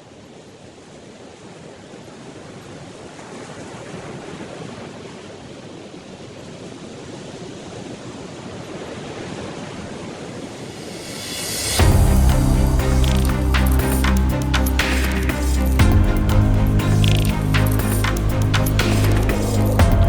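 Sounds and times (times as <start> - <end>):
sea surf rushing: 8.6 - 20.0.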